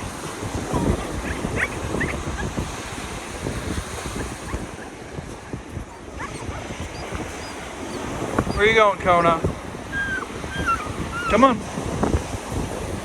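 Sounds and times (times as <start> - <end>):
surf: 0.0 - 13.0
wind buffeting microphone: 0.0 - 13.0
puppy whining: 0.3 - 3.0, 4.1 - 11.6.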